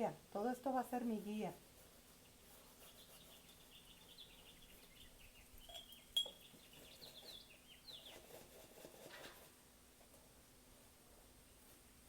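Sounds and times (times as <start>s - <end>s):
small birds chirping: 2.0s - 8.5s.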